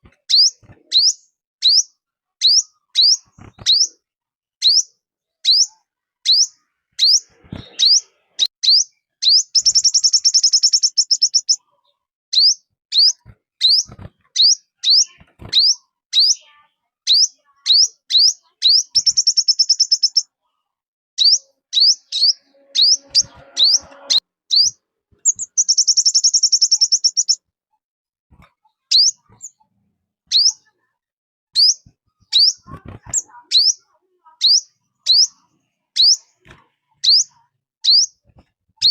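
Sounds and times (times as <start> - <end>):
bird chirping high and sharp: 0.3 - 4.0, 4.6 - 11.7, 12.3 - 20.3, 21.2 - 27.4, 28.9 - 29.6, 30.3 - 30.7, 31.6 - 36.4, 37.0 - 38.2
bird trilling fast: 6.3 - 11.6, 12.4 - 16.4, 21.2 - 27.4, 36.0 - 36.2.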